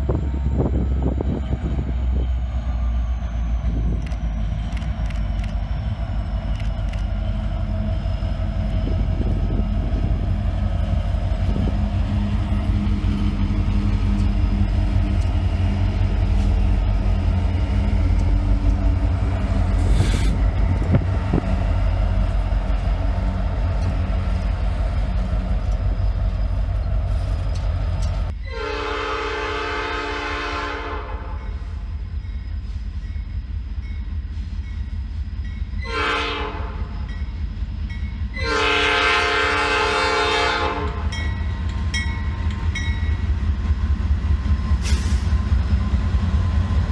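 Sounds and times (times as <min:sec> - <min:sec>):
diesel locomotive engine rumble: 0:00.0 - 0:46.9
multi-tone air horn: 0:28.5 - 0:31.4, 0:35.8 - 0:36.8, 0:38.4 - 0:41.0.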